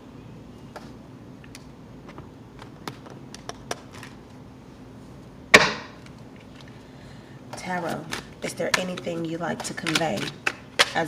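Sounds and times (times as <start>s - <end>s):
cards slapping: 0.8s - 4.2s, 7.8s - 11.0s
cards being shuffled: 0.8s - 4.4s, 7.6s - 11.0s.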